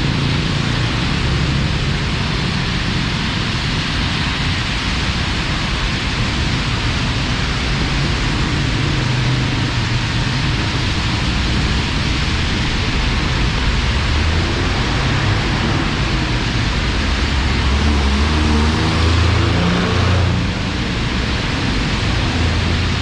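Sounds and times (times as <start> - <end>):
heavy rain pouring: 0.0 - 23.0
vehicle engine passing: 13.5 - 23.0.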